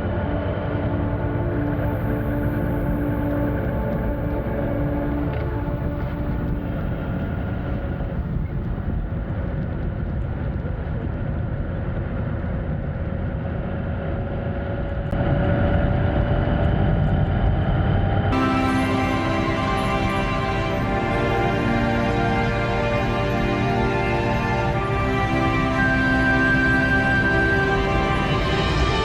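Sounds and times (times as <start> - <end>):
wind rush: 0.0 - 12.8.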